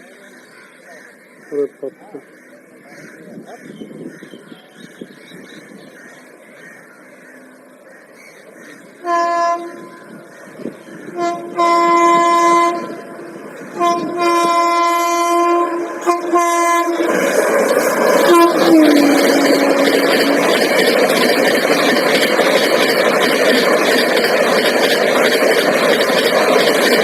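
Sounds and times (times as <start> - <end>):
train passing roar: 0.0 - 27.0
train horn blasts: 9.0 - 9.9, 11.1 - 17.2, 18.2 - 21.3.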